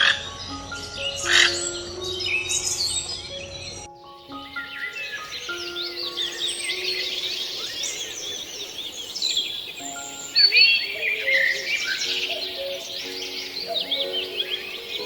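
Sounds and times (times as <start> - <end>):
soft background music: 0.0 - 15.0
songbirds chirping and singing: 0.0 - 15.0.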